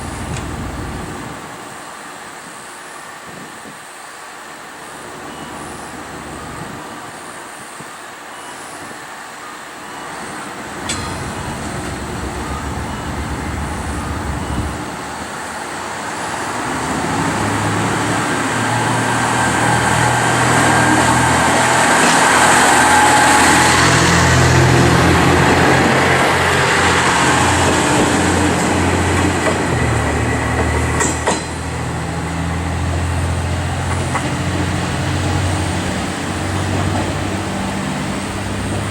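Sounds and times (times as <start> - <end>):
diesel engine hum: 0.0 - 1.6, 10.0 - 38.9.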